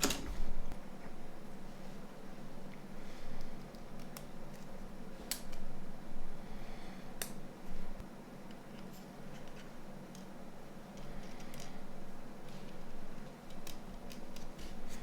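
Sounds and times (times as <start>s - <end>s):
steady low hum: 0.0s - 15.0s
small parts clicking and tapping: 10.9s - 11.8s, 12.7s - 14.6s.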